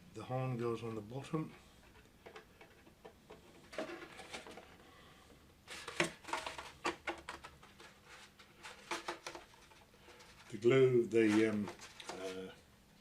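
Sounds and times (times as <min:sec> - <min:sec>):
plastic parts clicking and tapping: 0:01.9 - 0:04.8, 0:05.7 - 0:10.5.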